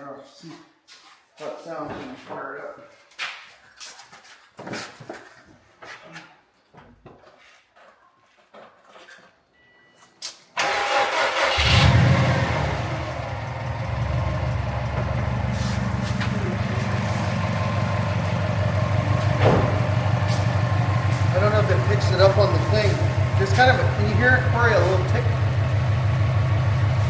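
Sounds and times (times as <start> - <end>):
engine starter cranking: 10.6 - 27.0
car engine idling: 11.1 - 27.0.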